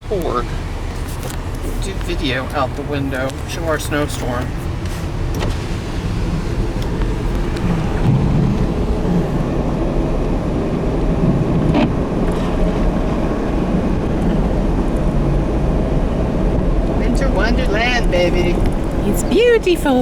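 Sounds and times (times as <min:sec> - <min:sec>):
car driving on snowy road: 0:00.0 - 0:20.0
wind buffeting microphone: 0:04.4 - 0:20.0.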